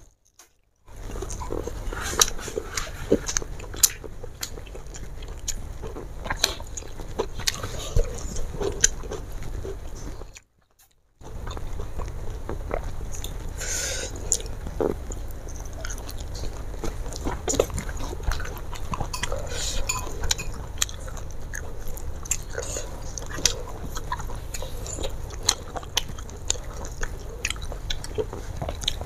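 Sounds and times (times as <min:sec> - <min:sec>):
person chewing with wet clicks: 0:00.0 - 0:29.0.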